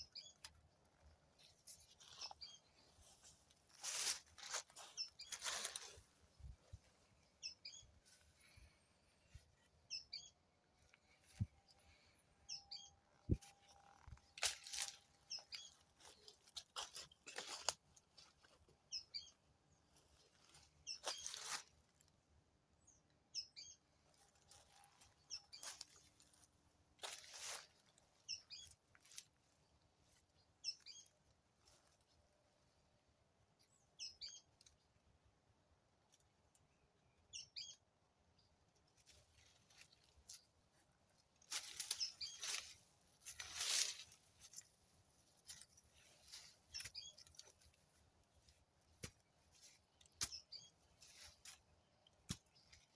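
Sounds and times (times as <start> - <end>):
scraping or crunching noises: 0.4 - 6.2, 13.3 - 18.5, 20.3 - 22.0, 24.4 - 28.0, 41.4 - 51.6.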